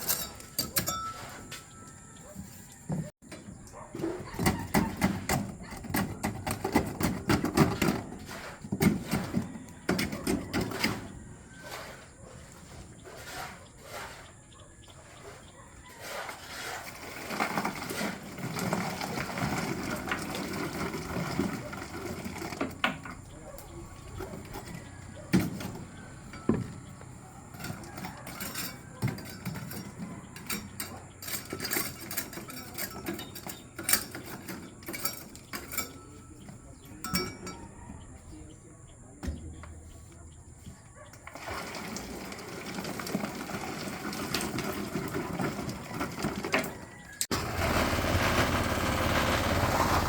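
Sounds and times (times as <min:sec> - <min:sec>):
metallic clinks and knocks: 0:00.0 - 0:02.2, 0:27.5 - 0:37.8.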